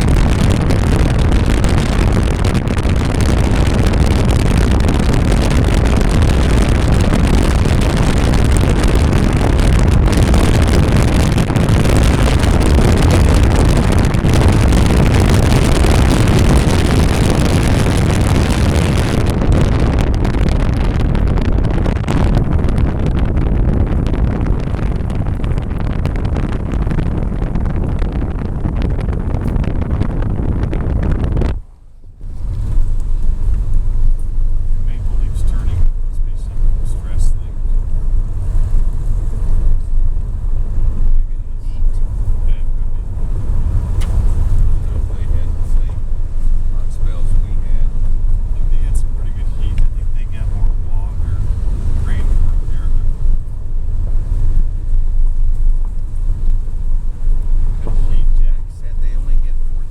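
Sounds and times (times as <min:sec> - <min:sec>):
car road and wind noise: 0:00.0 - 0:59.9.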